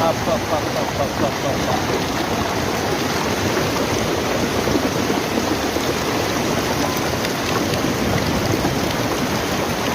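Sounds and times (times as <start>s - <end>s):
heavy rain hissing: 0.0s - 9.9s.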